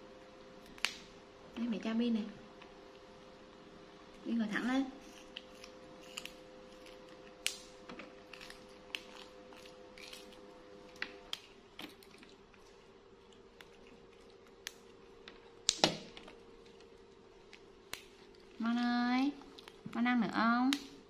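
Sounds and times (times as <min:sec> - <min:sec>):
faint steady hum: 0:00.0 - 0:21.0
bean pods snapping: 0:00.6 - 0:01.2, 0:05.1 - 0:16.4, 0:17.4 - 0:20.0, 0:20.6 - 0:21.0.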